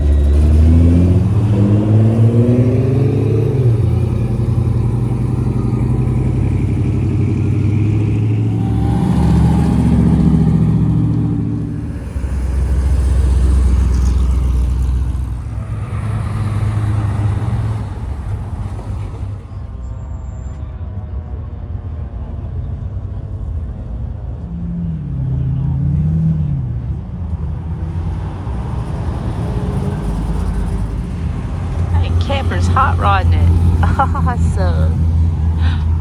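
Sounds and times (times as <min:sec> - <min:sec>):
car engine revving: 0:00.0 - 0:19.6, 0:27.8 - 0:36.0
car engines rumbling: 0:00.0 - 0:36.0.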